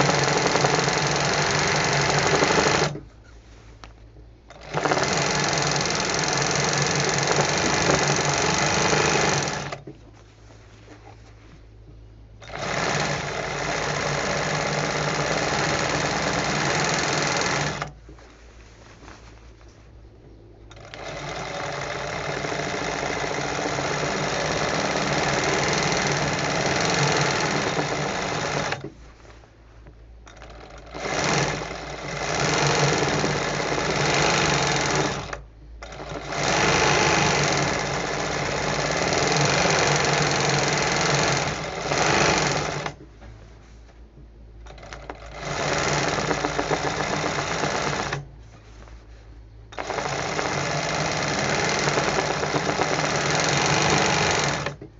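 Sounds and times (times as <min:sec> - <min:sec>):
embroidery sewing machine stitching: 0:00.0 - 0:03.0, 0:04.5 - 0:09.9, 0:12.4 - 0:18.0, 0:20.7 - 0:28.9, 0:30.3 - 0:43.0, 0:44.7 - 0:48.3, 0:49.7 - 0:54.8.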